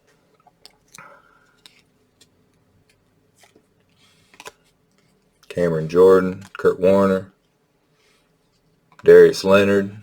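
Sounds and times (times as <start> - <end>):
trading cards flipping: 1.5 - 5.2.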